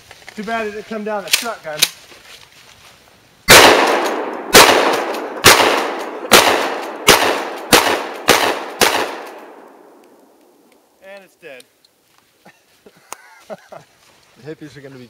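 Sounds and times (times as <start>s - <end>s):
shotgun shots echoing: 3.5s - 10.4s.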